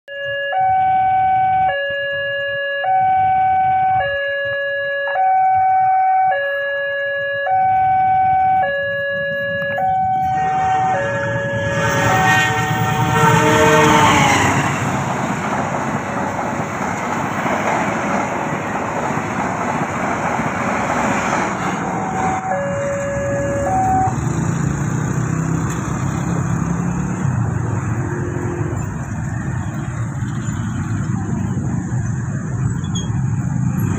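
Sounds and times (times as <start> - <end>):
two-tone level crossing alarm: 0.1 - 14.7, 21.9 - 24.2
carriages on rails: 7.7 - 33.9
train passing at speed: 7.8 - 33.9.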